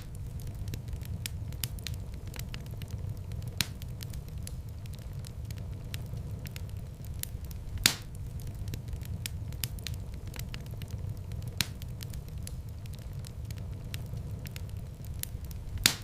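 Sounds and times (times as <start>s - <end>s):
low rumble of flames: 0.0s - 16.0s
wood fire crackling: 0.0s - 16.0s
loud pop of fire: 7.1s - 13.0s, 15.1s - 16.0s.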